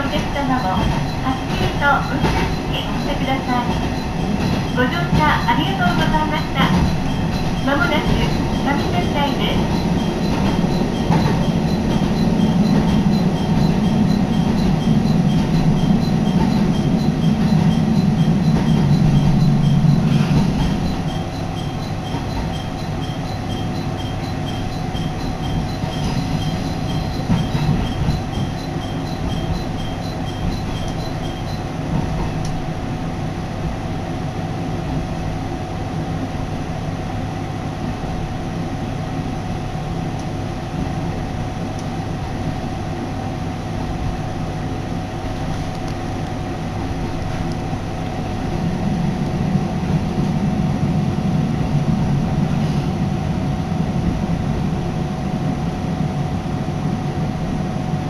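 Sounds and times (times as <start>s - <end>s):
level-crossing bell dinging: 0.0s - 32.6s
steady whine: 0.0s - 32.7s
train engine and wheels rumbling: 0.0s - 58.0s.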